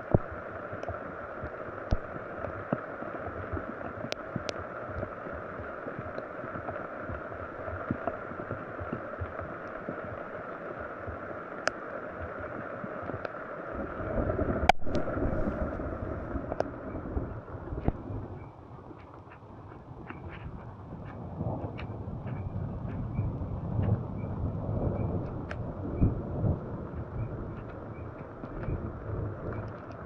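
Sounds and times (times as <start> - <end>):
water rushing: 0.0 - 21.9.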